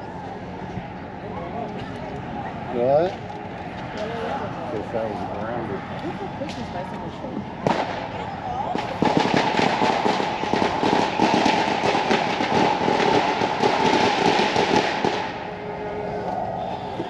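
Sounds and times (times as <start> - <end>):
firework crackling: 7.6 - 15.8.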